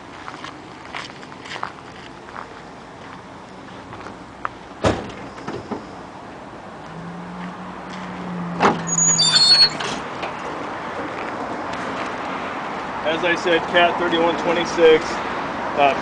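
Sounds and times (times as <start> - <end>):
high squeaks: 8.7 - 10.0.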